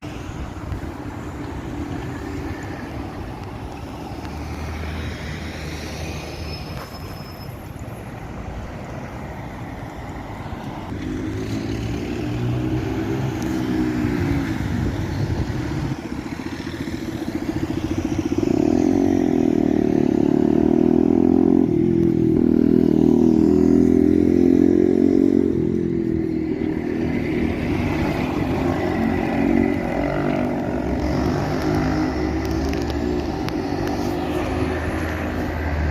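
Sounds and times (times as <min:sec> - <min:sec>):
bus diesel engine accelerating: 0:00.6 - 0:35.9.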